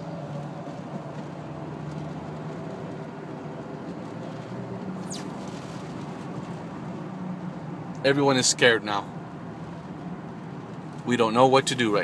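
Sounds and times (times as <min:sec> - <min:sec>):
car engine and road noise: 0:00.0 - 0:12.0
short high squeak: 0:05.0 - 0:05.8.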